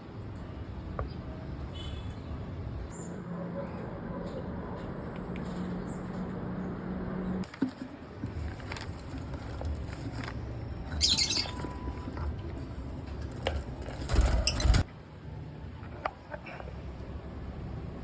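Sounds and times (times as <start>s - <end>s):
small clicks and rustles in cage: 4.3s - 6.5s, 7.4s - 10.6s
bird chirping: 10.8s - 12.1s
bird wings flapping: 13.3s - 14.9s.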